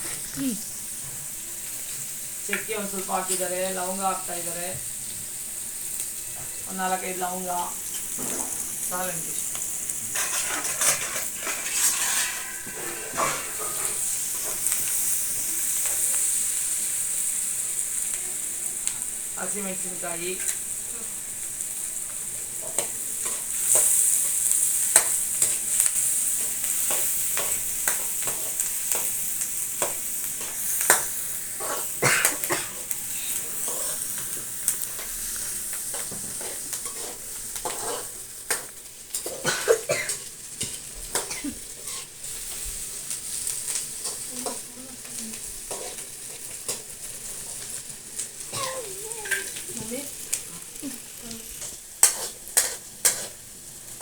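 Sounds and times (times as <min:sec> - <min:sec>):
onions sizzling in hot oil: 0:00.0 - 0:54.0
utensil scraping a pan: 0:10.1 - 0:15.0, 0:31.6 - 0:38.2, 0:45.6 - 0:46.8, 0:51.6 - 0:53.5.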